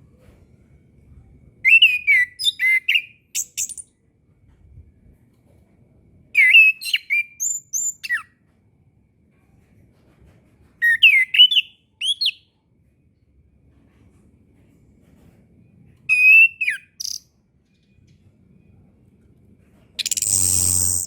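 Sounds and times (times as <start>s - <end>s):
thrush singing whistled notes: 20.0s - 21.0s.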